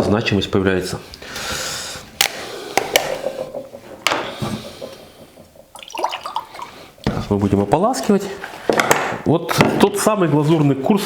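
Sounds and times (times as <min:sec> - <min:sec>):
liquid glaze sloshing and dripping: 0:04.6 - 0:07.1.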